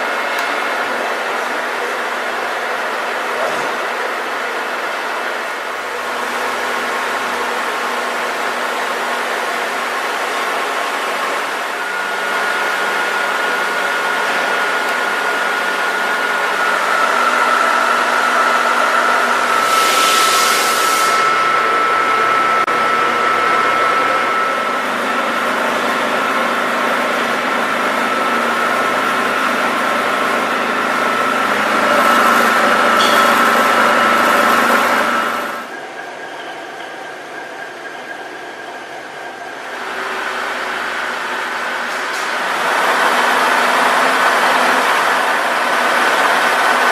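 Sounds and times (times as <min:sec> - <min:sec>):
milling machine running: 0:04.2 - 0:35.9, 0:39.5 - 0:46.9
high whine: 0:16.3 - 0:36.6.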